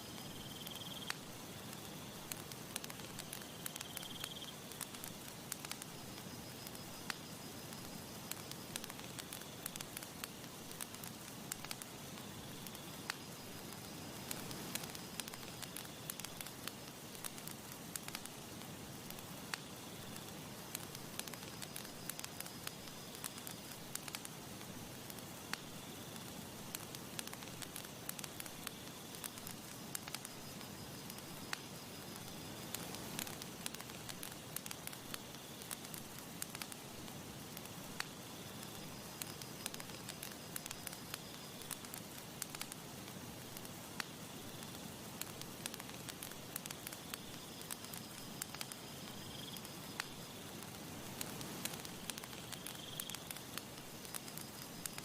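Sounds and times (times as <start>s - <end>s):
campfire crackling: 0.0s - 55.0s.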